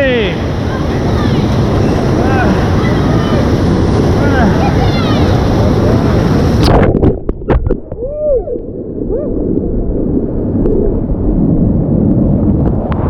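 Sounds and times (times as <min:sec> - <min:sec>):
rushing whitewater: 0:00.0 - 0:06.7
water splashing on camera: 0:00.0 - 0:08.6
water gurgling: 0:00.0 - 0:13.0.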